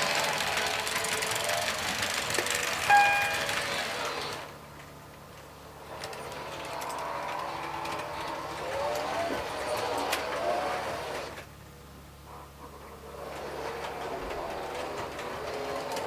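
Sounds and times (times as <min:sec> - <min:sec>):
model trains whirring and rattling: 0:00.0 - 0:16.0
short pitched toot: 0:02.9 - 0:03.8.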